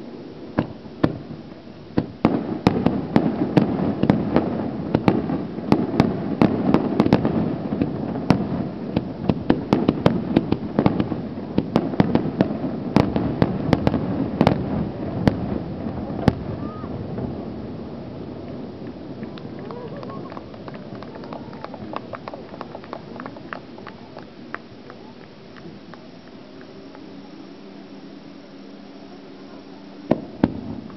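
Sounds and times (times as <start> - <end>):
continuous rumble: 0.0 - 30.9
fireworks bangs and crackles: 0.0 - 30.9.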